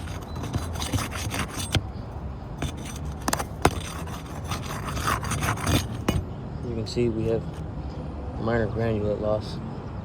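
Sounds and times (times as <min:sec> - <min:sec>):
tool scraping under shingle: 0:00.0 - 0:02.0, 0:02.6 - 0:06.2.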